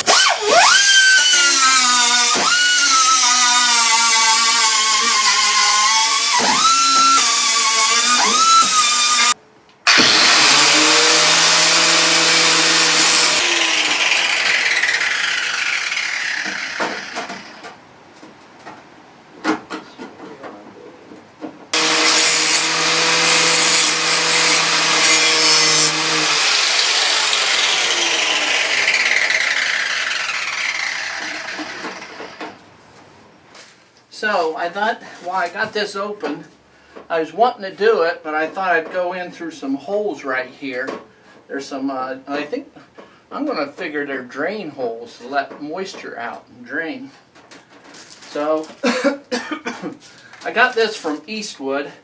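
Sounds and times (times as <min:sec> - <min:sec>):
power grinder on sheet metal: 0:00.0 - 0:17.6, 0:21.8 - 0:32.6.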